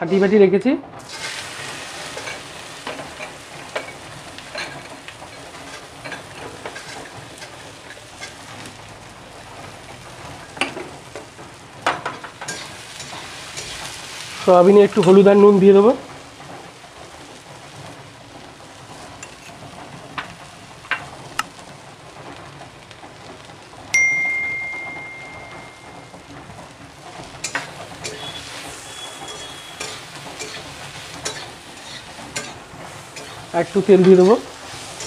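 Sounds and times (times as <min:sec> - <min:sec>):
food sizzling in oil: 0:01.0 - 0:35.0
metal utensil ringing ding: 0:24.0 - 0:26.2, 0:28.0 - 0:28.4, 0:29.0 - 0:30.6.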